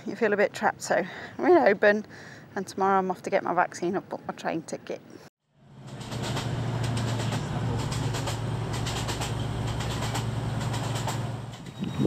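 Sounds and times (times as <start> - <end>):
train interior hum: 5.6 - 12.0
light clicks and rattles: 5.9 - 11.8.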